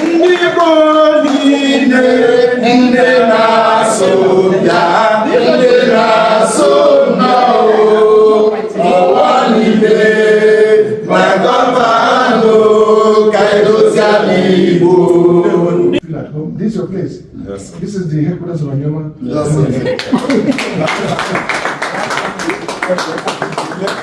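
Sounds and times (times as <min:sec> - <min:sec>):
group of voices singing: 0:00.0 - 0:16.0.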